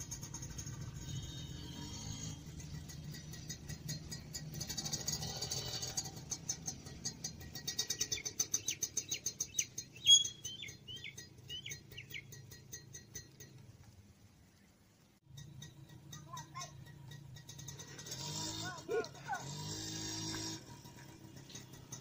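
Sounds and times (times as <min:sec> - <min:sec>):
bird chirping: 0:07.5 - 0:13.1.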